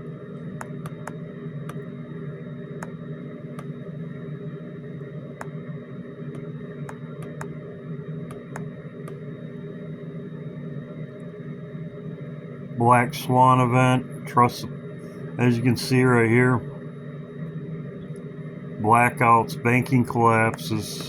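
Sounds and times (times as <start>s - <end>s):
low background hum: 0.0s - 21.0s
faint irregular clicks: 0.6s - 1.8s, 6.3s - 7.5s, 8.3s - 9.2s.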